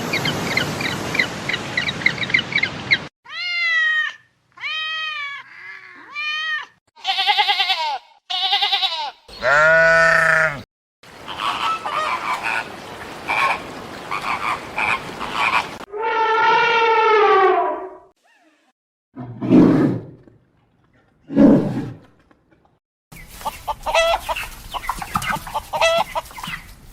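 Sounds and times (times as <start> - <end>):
wavering bleat-like animal calls: 4.8 - 10.6.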